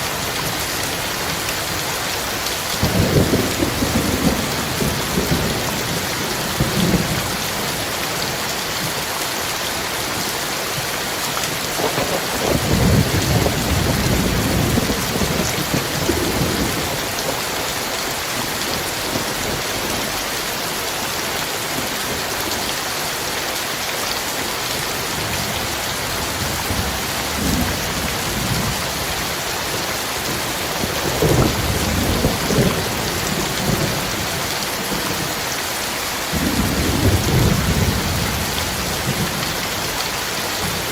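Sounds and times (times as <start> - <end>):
heavy rain: 0.0 - 40.9
rolling thunder: 2.8 - 7.7, 11.8 - 17.4, 26.0 - 29.2, 30.2 - 35.2, 36.3 - 39.5.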